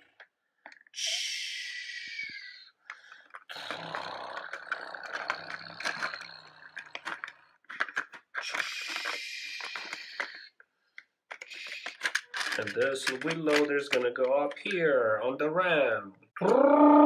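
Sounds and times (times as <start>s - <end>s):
toy wheels rattling: 0.0s - 10.6s, 11.3s - 14.8s
plastic clicks and knocks: 4.4s - 10.4s, 11.3s - 14.8s.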